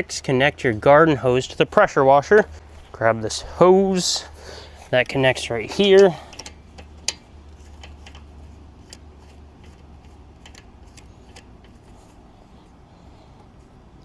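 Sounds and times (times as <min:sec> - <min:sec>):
low steady hum: 0:00.0 - 0:14.0
hose fittings clicking: 0:01.2 - 0:12.2.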